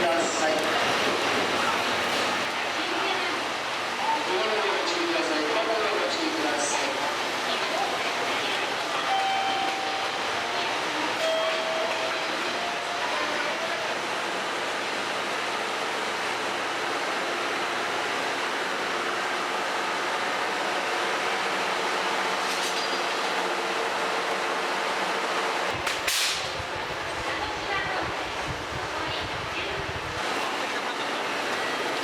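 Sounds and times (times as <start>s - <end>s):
train running on rails: 0.0s - 32.0s.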